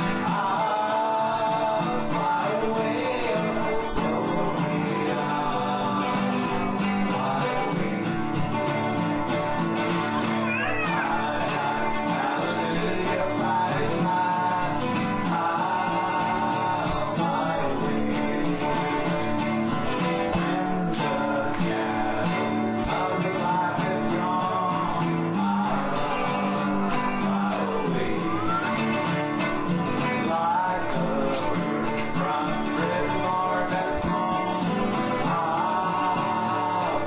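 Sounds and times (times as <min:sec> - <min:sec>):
acoustic guitar gospel music: 0:00.0 - 0:37.0.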